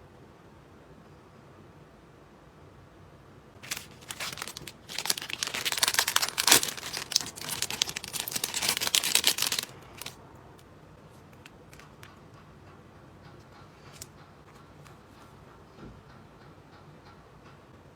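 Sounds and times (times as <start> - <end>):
packaging crinkling: 3.6 - 10.2.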